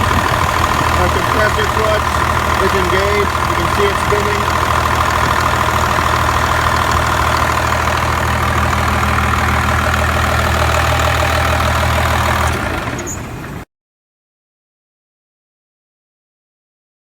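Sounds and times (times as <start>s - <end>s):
compressor spinning hum: 0.0s - 13.6s
truck engine idling: 0.0s - 13.6s.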